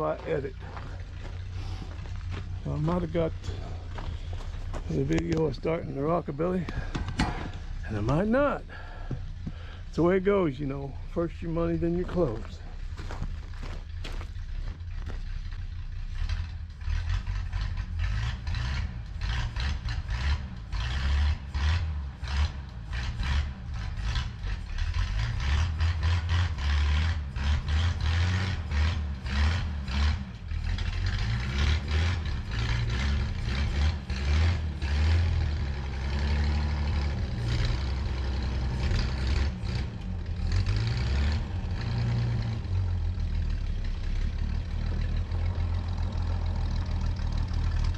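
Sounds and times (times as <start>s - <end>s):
engine running unevenly: 0.0s - 47.9s.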